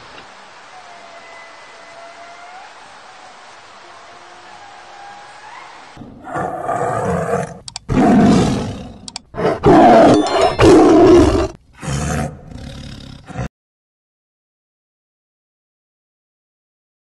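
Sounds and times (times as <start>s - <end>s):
lion roaring: 6.0s - 13.5s.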